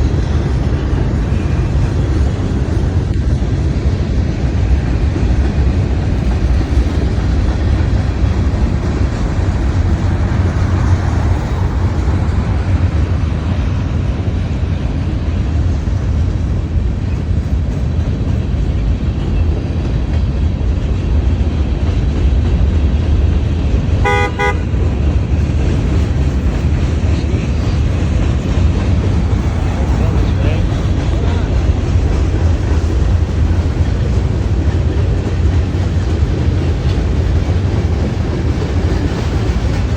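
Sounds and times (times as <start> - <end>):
freight train rumbling past: 0.0 - 39.9
train horn beep: 24.0 - 24.8.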